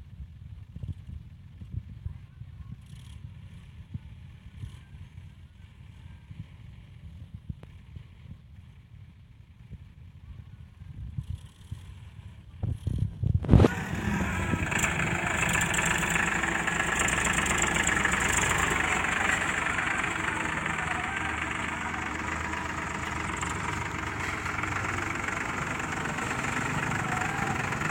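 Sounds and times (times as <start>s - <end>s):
engine running steadily: 11.1s - 27.9s
engine starting with a knock: 13.4s - 21.6s.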